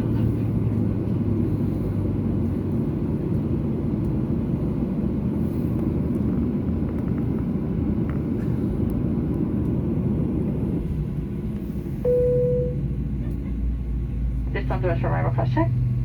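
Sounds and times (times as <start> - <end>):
aircraft cabin rumble: 0.0 - 16.0
low hum: 4.0 - 16.0.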